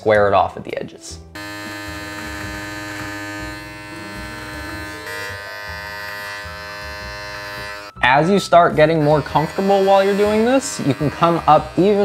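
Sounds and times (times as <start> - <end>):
electric beard clippers buzzing: 1.3 - 8.0, 8.6 - 12.0.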